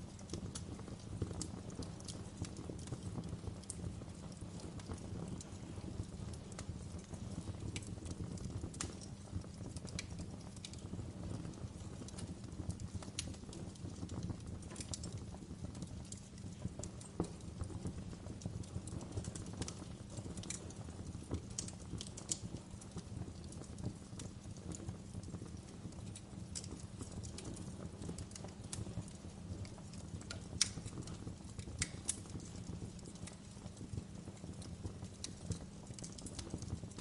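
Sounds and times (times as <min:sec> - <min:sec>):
fire crackling: 0:00.0 - 0:37.0.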